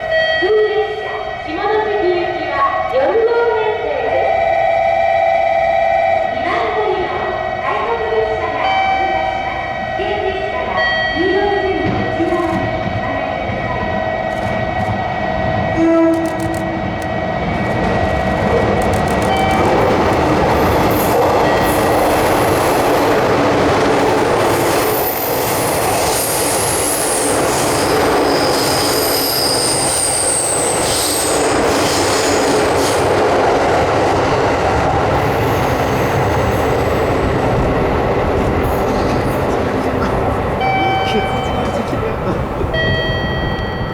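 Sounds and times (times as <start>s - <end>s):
electric train rushing past: 4.1s - 43.9s
train horn: 12.1s - 17.3s.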